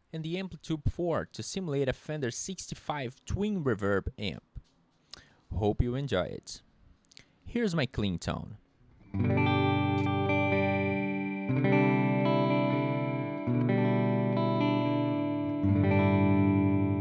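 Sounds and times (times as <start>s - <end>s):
electric guitar chords strummed: 9.0s - 17.0s.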